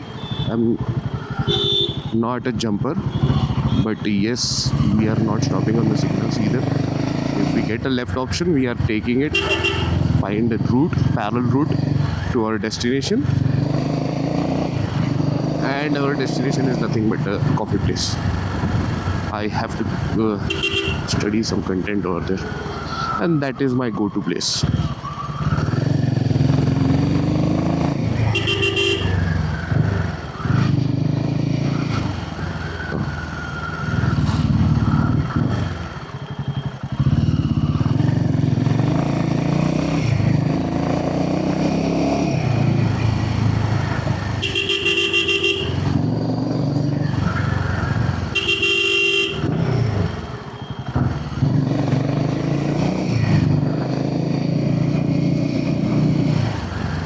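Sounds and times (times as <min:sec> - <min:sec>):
motorcycle engine revving: 0:00.1 - 0:02.2, 0:04.7 - 0:08.1, 0:08.7 - 0:12.4, 0:13.1 - 0:21.3, 0:25.2 - 0:36.1, 0:36.8 - 0:57.0
vehicle horn honking: 0:00.2 - 0:00.5, 0:01.4 - 0:02.2, 0:09.3 - 0:10.1, 0:20.5 - 0:21.2, 0:28.3 - 0:29.2, 0:44.4 - 0:45.9, 0:48.3 - 0:49.6.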